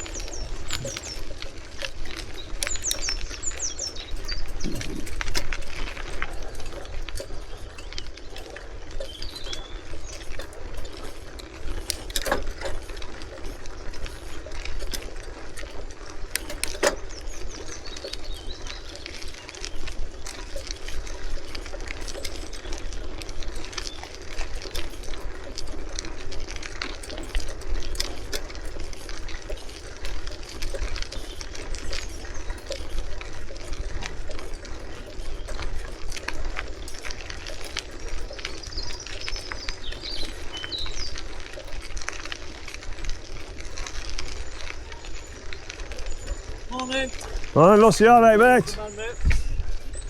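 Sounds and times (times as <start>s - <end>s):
wind rumble on microphone: 0.0s - 13.0s, 49.0s - 50.0s
bicycle clicks and rattles: 0.0s - 47.6s, 48.7s - 50.0s.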